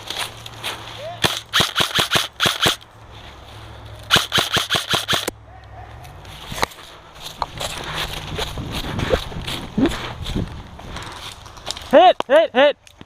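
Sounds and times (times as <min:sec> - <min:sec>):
airsoft guns firing: 0:01.2 - 0:02.8, 0:04.1 - 0:05.3.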